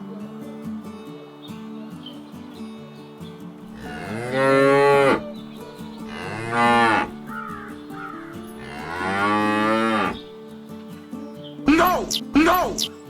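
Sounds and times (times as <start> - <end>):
cattle mooing: 3.7 - 5.3, 6.0 - 10.3.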